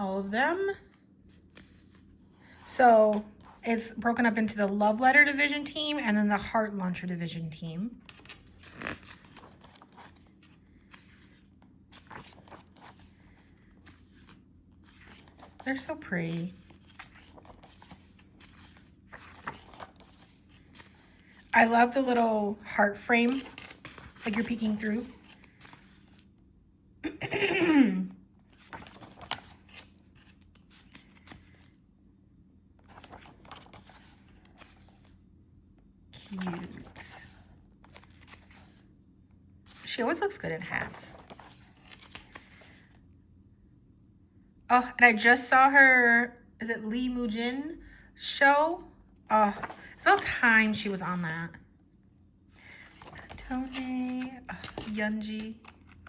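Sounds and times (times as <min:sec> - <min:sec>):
paper and card rustling: 0:00.7 - 0:05.4, 0:07.9 - 0:26.4, 0:28.4 - 0:31.8, 0:32.8 - 0:35.2, 0:36.2 - 0:38.9, 0:39.7 - 0:43.0, 0:49.4 - 0:51.5, 0:52.6 - 0:56.0.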